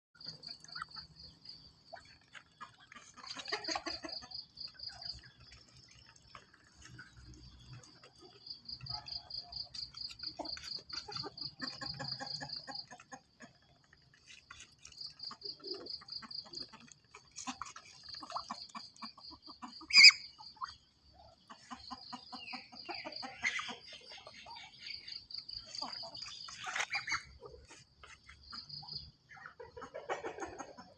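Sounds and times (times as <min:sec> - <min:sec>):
clucking calls: 0:00.2 - 0:30.9.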